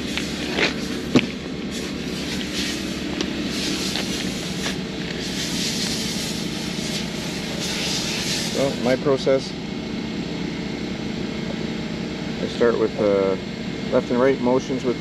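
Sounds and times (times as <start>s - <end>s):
portable generator engine running: 0.0s - 15.0s
wet sandpaper rubbing: 1.7s - 8.9s.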